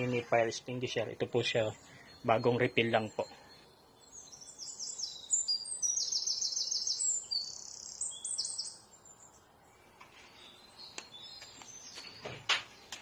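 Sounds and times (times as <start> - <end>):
small birds trilling: 0.0 - 13.0.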